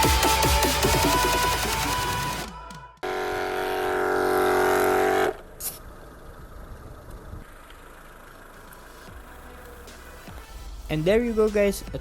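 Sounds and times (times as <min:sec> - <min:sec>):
background music: 0:00.0 - 0:03.1, 0:09.0 - 0:12.0
air compressor buzzing: 0:03.0 - 0:05.8.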